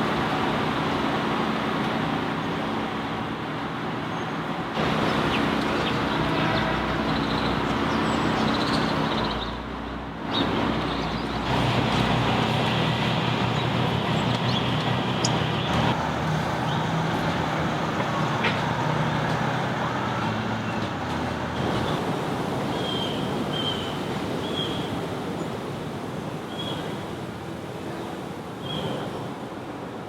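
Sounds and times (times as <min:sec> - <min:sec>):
vehicle low hum: 0:00.0 - 0:23.9
road traffic noise: 0:00.0 - 0:30.0.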